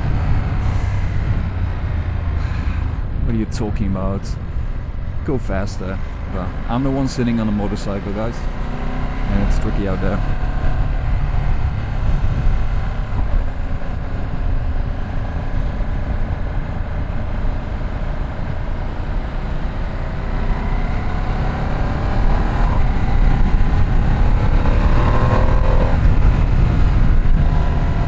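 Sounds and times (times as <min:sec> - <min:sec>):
wind rumble on microphone: 0:00.0 - 0:28.0
motorcycle engine running: 0:09.3 - 0:28.0.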